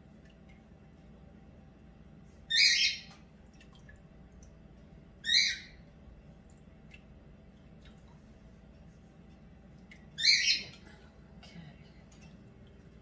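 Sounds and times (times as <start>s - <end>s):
pet bird squawking: 2.5s - 3.1s, 5.2s - 5.8s, 10.2s - 10.7s.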